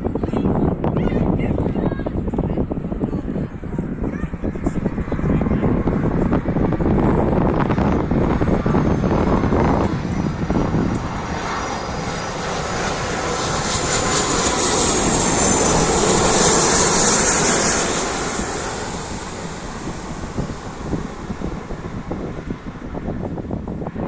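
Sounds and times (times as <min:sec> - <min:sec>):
jet engines passing: 0:00.0 - 0:24.0
high engine whine falling: 0:05.2 - 0:23.9.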